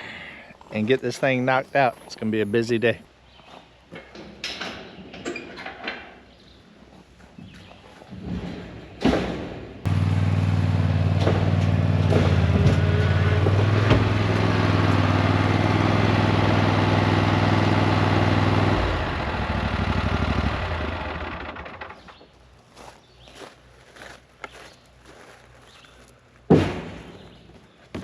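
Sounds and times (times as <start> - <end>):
engine running steadily: 9.9 - 22.6.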